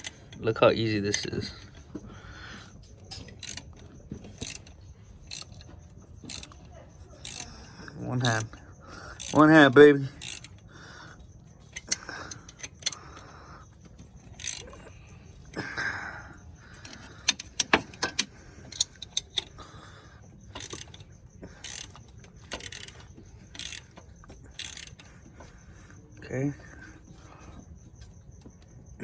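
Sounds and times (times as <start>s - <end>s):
ratchet wrench ratcheting: 0.0s - 2.0s, 2.9s - 10.7s, 11.7s - 13.0s, 13.8s - 14.9s, 16.8s - 19.6s, 20.4s - 25.1s
metal clicks and clinks: 0.0s - 19.6s, 20.4s - 25.6s.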